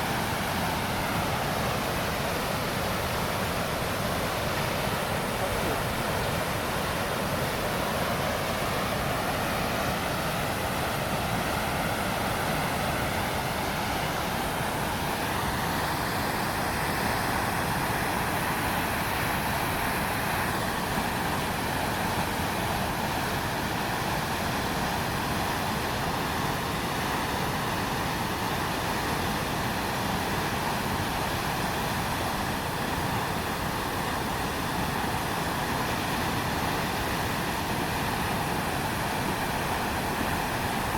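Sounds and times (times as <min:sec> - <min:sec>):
river rushing: 0:00.0 - 0:40.9.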